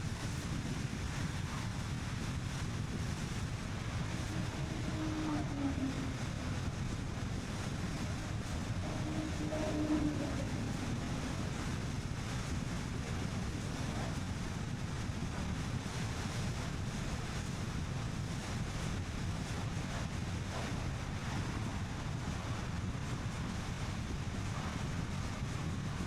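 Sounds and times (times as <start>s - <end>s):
wind buffeting microphone: 0.0s - 26.0s
car road noise: 3.2s - 13.4s.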